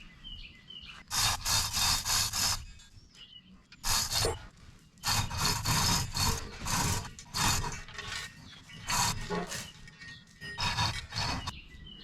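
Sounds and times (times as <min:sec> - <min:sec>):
rough scraping strokes: 0:01.1 - 0:02.8, 0:03.8 - 0:11.5.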